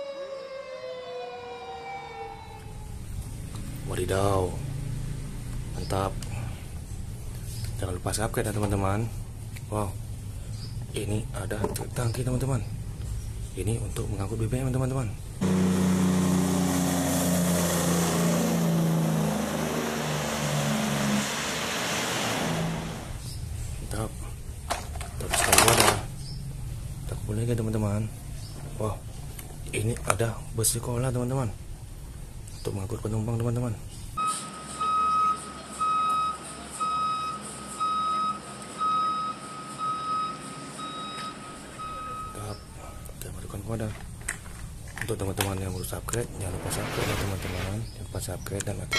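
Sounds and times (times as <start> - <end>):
vehicle engine droning with hiss: 2.1 - 7.9, 15.1 - 24.6
reversing alarm beeps: 34.2 - 42.7.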